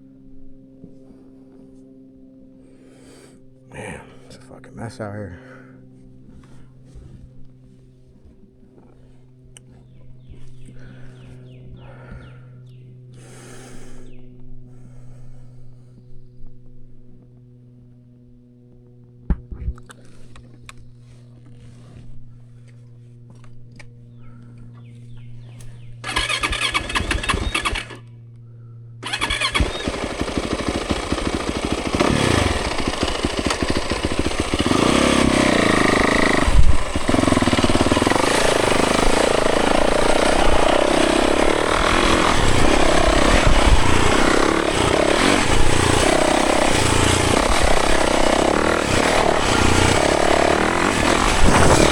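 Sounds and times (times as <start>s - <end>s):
low hum with clicks: 5.9s - 13.3s, 14.0s - 26.1s, 27.9s - 29.0s
dirt bike engine revving: 26.0s - 28.1s, 29.0s - 51.9s.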